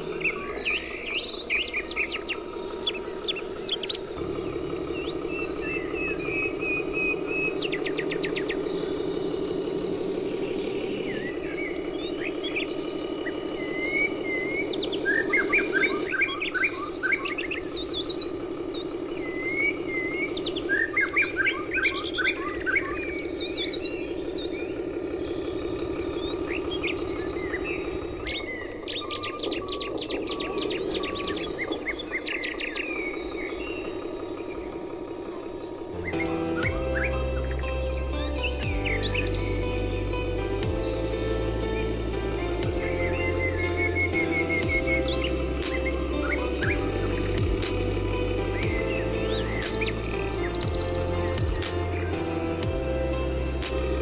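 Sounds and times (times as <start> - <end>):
small birds chirping and trilling: 0.0 - 54.0
steady low hum: 0.0 - 54.0.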